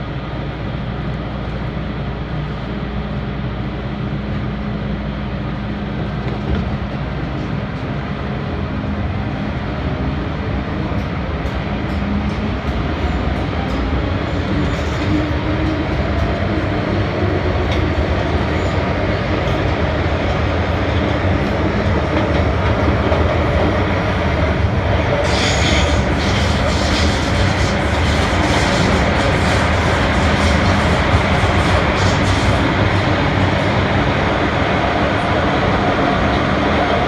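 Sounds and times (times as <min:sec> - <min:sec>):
train wheels rumbling on rail: 0:00.0 - 0:37.0
hissing screech: 0:24.8 - 0:33.5.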